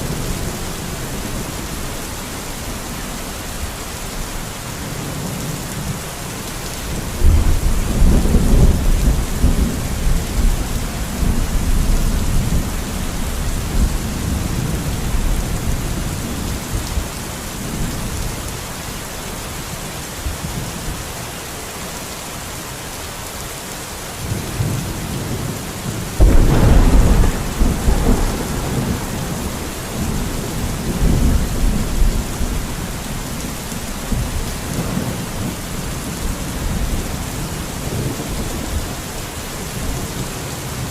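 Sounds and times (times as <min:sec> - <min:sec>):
rain hissing: 0:20.8 - 0:40.9
thunder clap: 0:26.2 - 0:32.6
thunder rumbling: 0:26.2 - 0:38.8.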